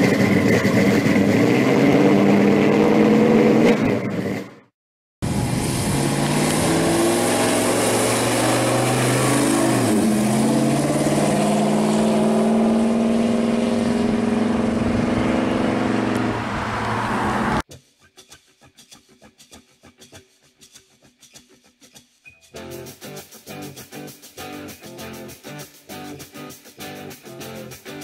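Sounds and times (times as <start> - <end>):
car exhaust droning past: 5.3 - 17.6.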